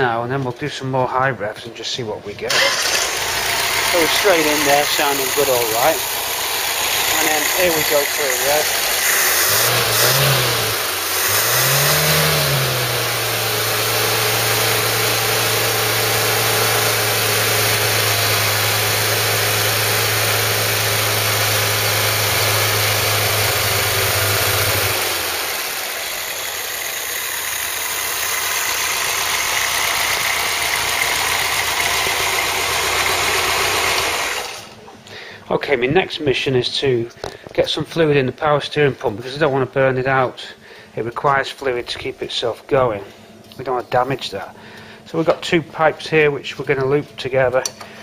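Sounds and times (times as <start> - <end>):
car engine revving and idling: 2.5 - 34.7.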